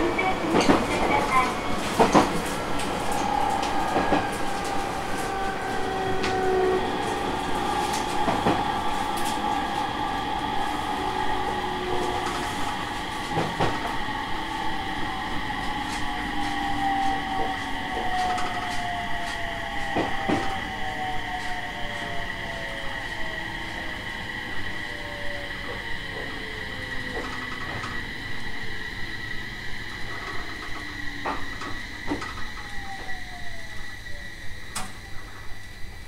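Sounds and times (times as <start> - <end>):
rail joint clack: 0.0 - 9.6, 25.6 - 28.1, 29.9 - 33.2
wheel and track noise: 0.0 - 24.0, 25.5 - 33.9
train motor whine: 0.0 - 36.0.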